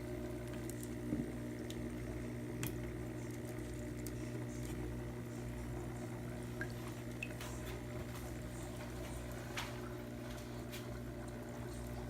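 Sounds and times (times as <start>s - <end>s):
low electrical hum: 0.0s - 12.0s
aquarium water trickling: 6.1s - 12.0s.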